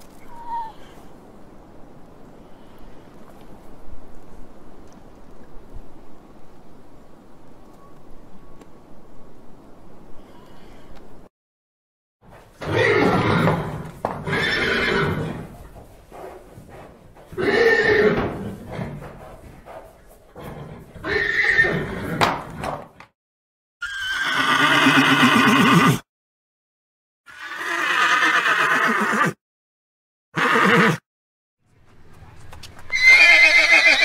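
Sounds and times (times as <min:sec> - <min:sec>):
horse neighing: 0:12.6 - 0:15.6, 0:17.3 - 0:19.2, 0:20.4 - 0:22.6, 0:23.8 - 0:26.0, 0:27.3 - 0:29.4, 0:30.4 - 0:31.0, 0:32.9 - 0:34.0.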